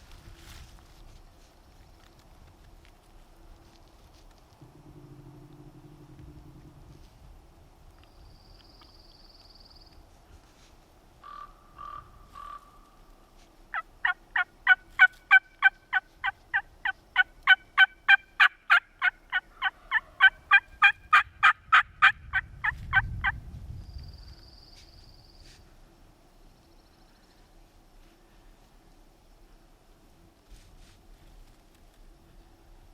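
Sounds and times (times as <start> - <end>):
turkey yelping: 13.7 - 23.0.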